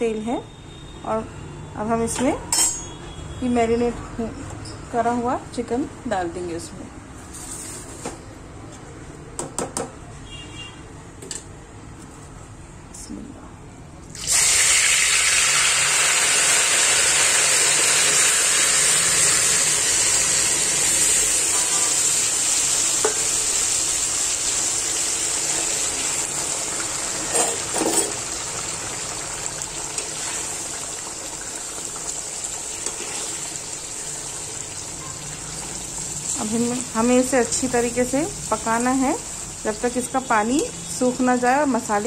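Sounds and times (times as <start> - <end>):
chicken sizzling in hot oil: 14.1 - 42.0.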